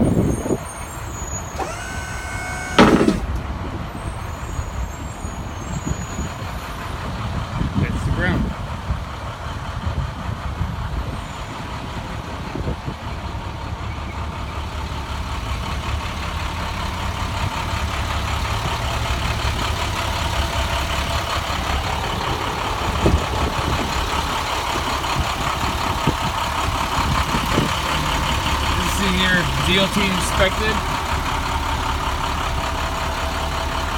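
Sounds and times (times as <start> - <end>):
diesel truck engine idling: 0.0 - 33.9
faint engine knocks: 1.6 - 3.5.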